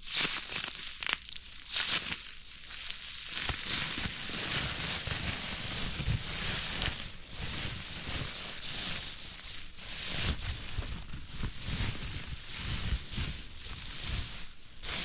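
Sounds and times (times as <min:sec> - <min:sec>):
bubble wrap crinkling and popping: 0:00.0 - 0:15.0.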